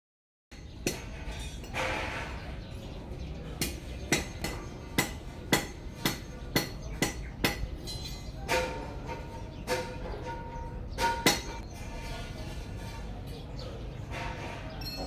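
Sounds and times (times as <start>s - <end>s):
sharp knocks: 9.7s - 11.6s.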